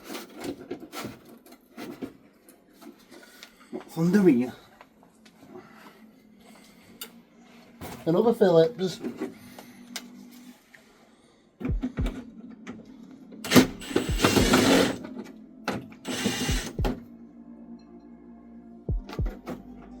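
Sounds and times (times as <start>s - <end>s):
tool working a screw: 13.5s - 15.0s, 16.1s - 16.8s.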